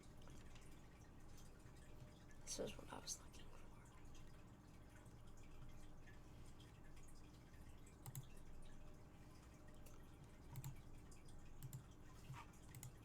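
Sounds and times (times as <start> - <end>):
faint computer clicks: 8.0 - 8.4, 9.8 - 10.9, 11.5 - 13.0.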